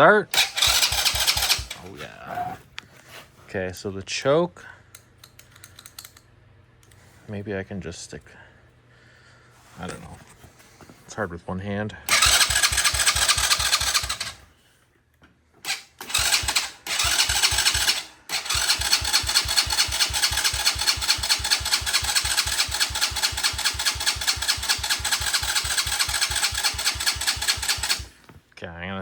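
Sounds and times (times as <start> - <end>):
starter cranking small engine: 0.3 - 1.9, 12.1 - 14.5, 15.6 - 28.3.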